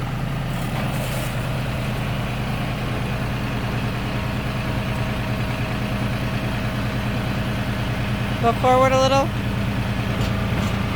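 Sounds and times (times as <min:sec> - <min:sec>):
tractor engine running: 0:00.0 - 0:10.9.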